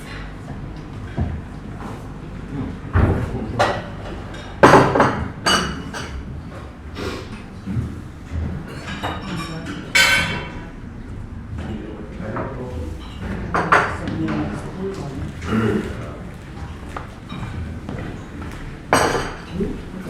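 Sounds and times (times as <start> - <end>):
crockery and cutlery clattering: 3.0 - 6.3, 8.5 - 10.7, 17.1 - 20.0.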